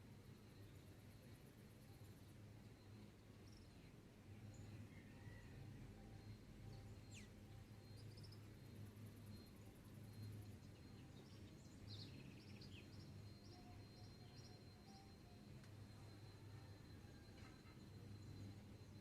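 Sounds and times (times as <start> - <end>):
high insect trill: 0.0 - 19.0.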